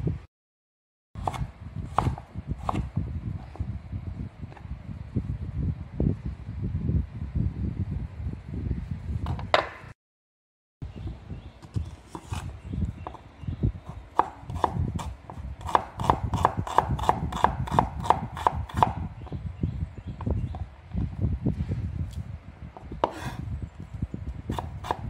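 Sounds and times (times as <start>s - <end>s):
knife chopping on wooden board: 1.2s - 2.9s, 12.1s - 13.2s, 14.1s - 19.0s, 23.0s - 23.4s, 24.5s - 25.0s.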